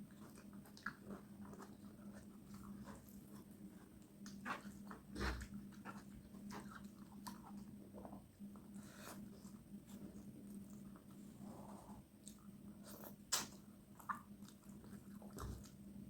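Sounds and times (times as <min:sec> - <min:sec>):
faint steady hum: 0:00.0 - 0:16.0
person chewing and eating: 0:00.0 - 0:16.0.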